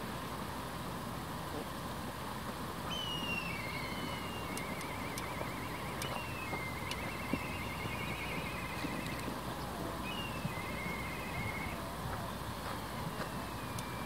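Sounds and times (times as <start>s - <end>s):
outdoor background noise: 0.0s - 14.0s
bird whistle and trill: 2.9s - 9.4s, 10.0s - 11.9s, 12.7s - 14.0s.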